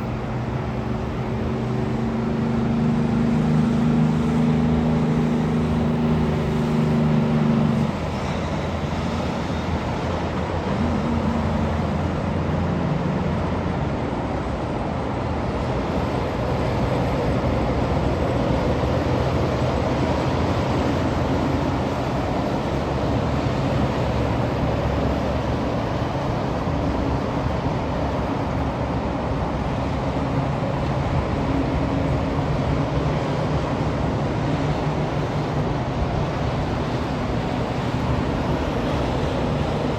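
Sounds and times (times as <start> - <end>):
heavy engine note: 0.0 - 39.9
trucks passing: 0.0 - 39.9
tyre and engine noise: 0.0 - 39.9.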